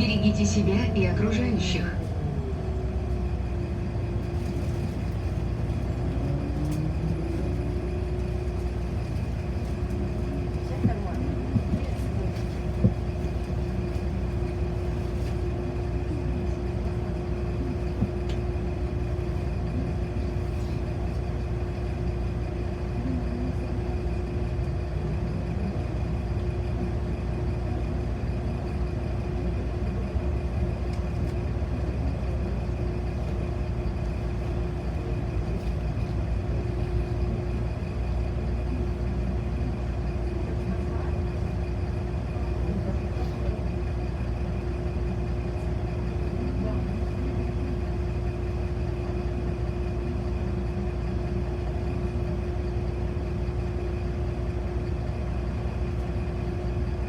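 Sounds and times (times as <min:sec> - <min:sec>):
steady hum: 0:00.0 - 0:10.1
bus engine and road rumble: 0:00.0 - 0:57.0.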